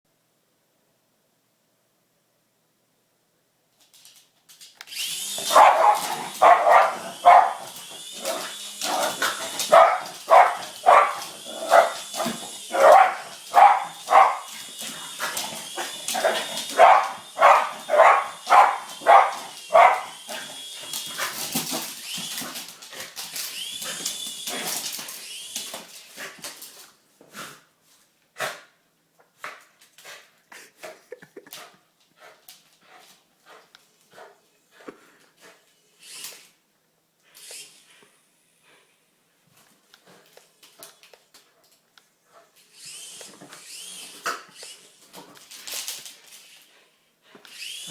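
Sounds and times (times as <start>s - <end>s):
toy helicopter motor whine: 4.9s - 25.9s, 36.0s - 36.4s, 37.4s - 38.0s, 42.7s - 45.0s, 47.5s - 47.9s
dog barking fast: 5.5s - 7.7s, 9.6s - 12.0s, 12.7s - 14.5s, 16.2s - 20.2s.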